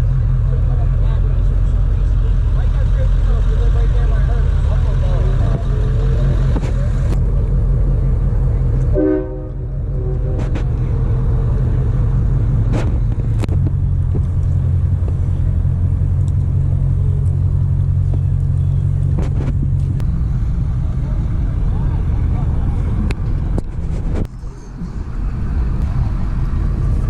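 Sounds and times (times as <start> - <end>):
vehicle engine rumbling: 0.0 - 27.0
short horn-like tone: 9.0 - 10.5.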